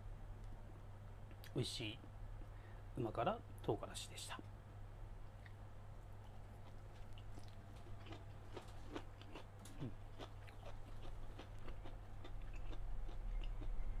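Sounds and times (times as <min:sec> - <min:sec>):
low steady hum: 0:00.0 - 0:14.0
person chewing food: 0:06.2 - 0:14.0.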